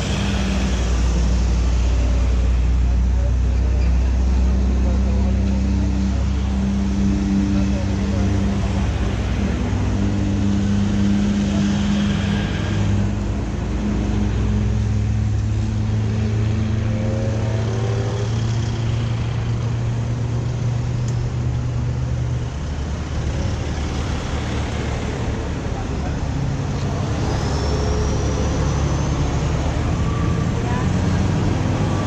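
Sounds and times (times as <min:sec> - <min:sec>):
road and wind noise: 0:00.0 - 0:32.0.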